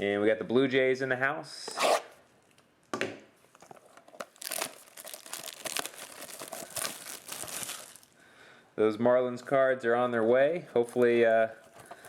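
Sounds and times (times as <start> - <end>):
plastic wrap crinkling and tearing: 4.1 - 8.2.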